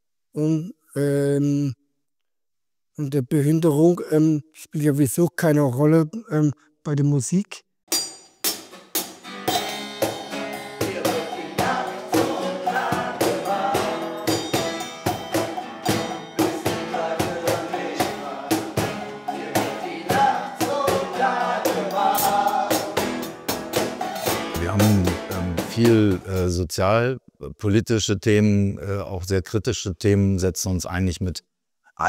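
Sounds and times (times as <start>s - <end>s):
drum kit beat: 7.9s - 26.5s
voices singing together: 10.5s - 23.4s.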